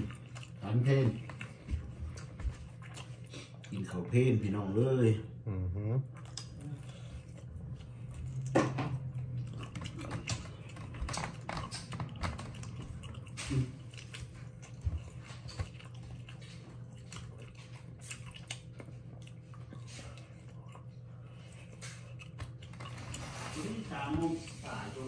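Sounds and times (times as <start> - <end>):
person chewing ribs: 0.0 - 25.0
steady low hum: 0.0 - 25.0
wet mouth clicks: 6.2 - 6.8.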